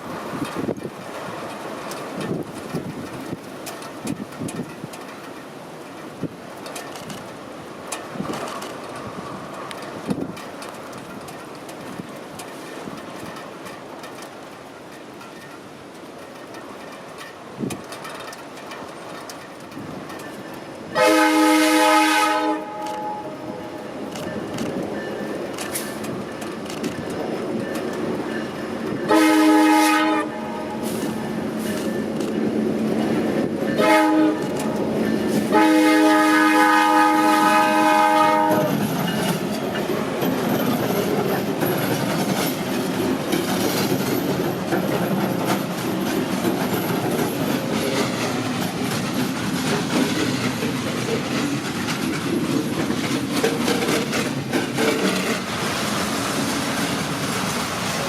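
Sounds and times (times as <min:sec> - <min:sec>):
train rumbling past: 0:00.0 - 0:58.0
wheel clatter on rails: 0:00.0 - 0:58.0
locomotive horn blasts: 0:21.0 - 0:23.5, 0:29.1 - 0:31.0, 0:33.8 - 0:34.6, 0:35.4 - 0:38.8.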